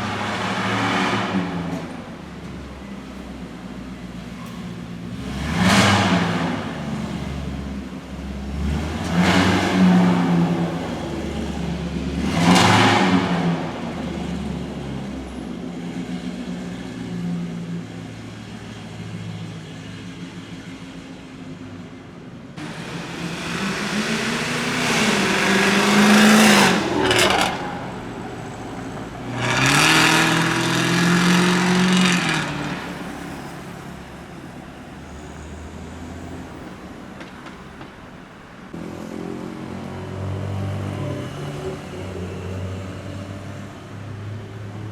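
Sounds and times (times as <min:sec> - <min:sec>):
car engine revving and idling: 0:00.0 - 0:20.6, 0:22.6 - 0:36.8.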